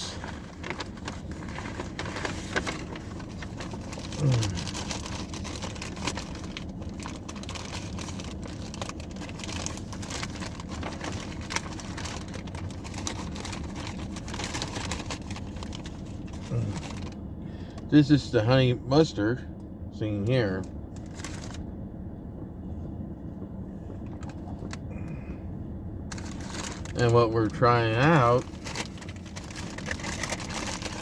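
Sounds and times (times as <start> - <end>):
food packaging rustling: 0.0 - 17.2, 28.2 - 31.0
low rumble: 0.0 - 17.9, 18.8 - 27.1.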